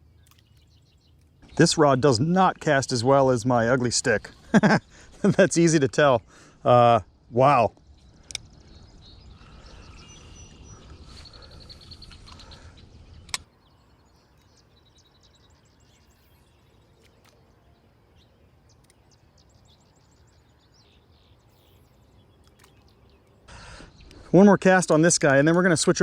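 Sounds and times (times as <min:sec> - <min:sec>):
birds chirping: 0:00.0 - 0:26.0
outdoor background noise: 0:00.0 - 0:26.0
sharp click: 0:13.2 - 0:13.5.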